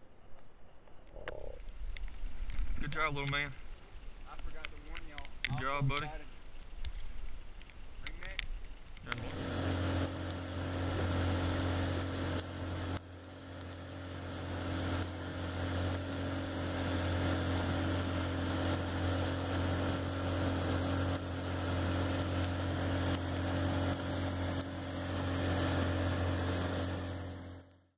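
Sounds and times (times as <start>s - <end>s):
boat motor droning: 4.6s - 6.3s, 9.0s - 27.8s.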